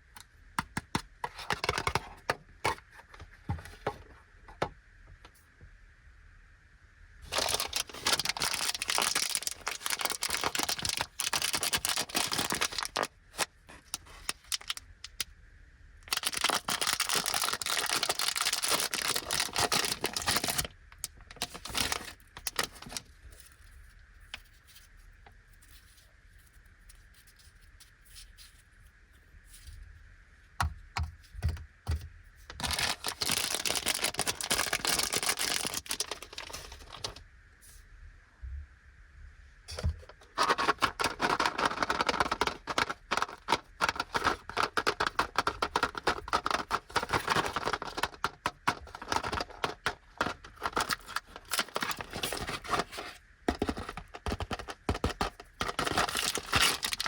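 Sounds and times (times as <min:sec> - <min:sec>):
plastic bag crinkling and tearing: 0:07.2 - 0:15.2, 0:16.1 - 0:23.2, 0:32.5 - 0:37.2, 0:40.2 - 0:57.0.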